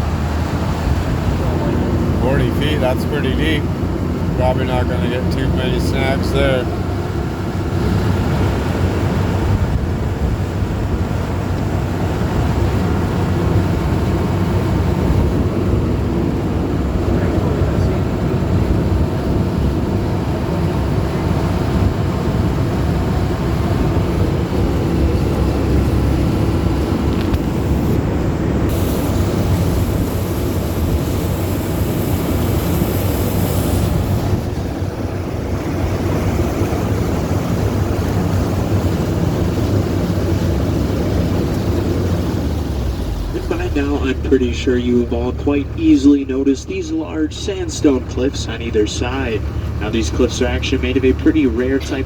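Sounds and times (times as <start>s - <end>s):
boat engine running: 0.0s - 52.0s
loud hiss: 28.7s - 34.5s.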